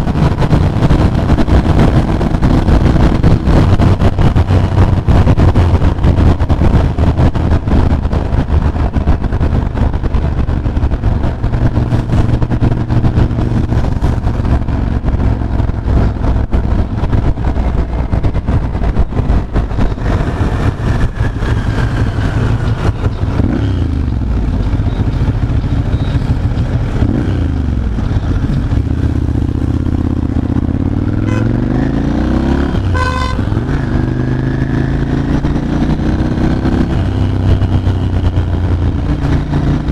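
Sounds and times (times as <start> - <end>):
motorcycle engine running: 0.0 - 39.9
wind noise on microphone: 0.0 - 39.9
vehicle horn toots: 31.2 - 31.8, 32.8 - 33.6.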